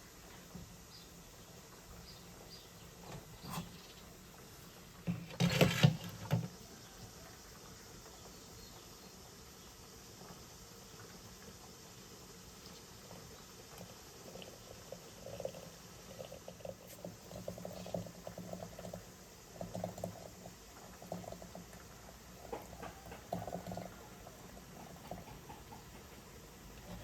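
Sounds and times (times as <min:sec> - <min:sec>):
liquid bubbling: 0:09.9 - 0:27.0.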